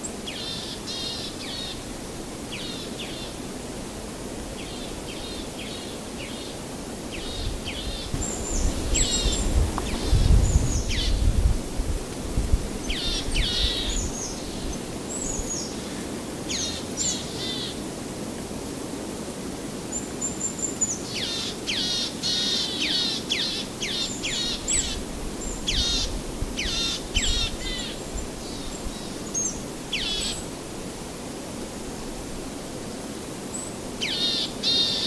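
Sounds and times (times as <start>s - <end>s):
outdoor ambience hiss: 0.0s - 35.0s
birds calling: 4.6s - 11.3s, 12.8s - 17.8s.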